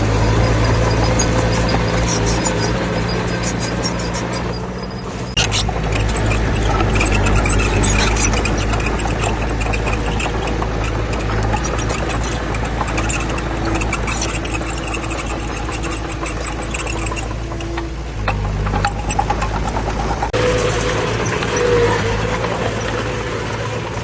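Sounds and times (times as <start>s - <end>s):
diesel earthmoving machinery running: 0.0s - 24.0s
short knocks and rattles: 5.3s - 20.4s.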